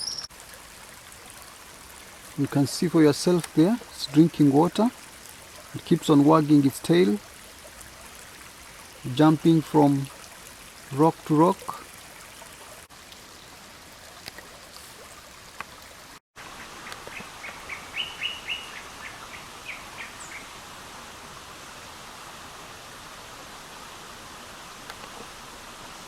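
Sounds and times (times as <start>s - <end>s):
bird singing high notes: 0.0s - 0.3s
stream rushing: 0.0s - 26.0s.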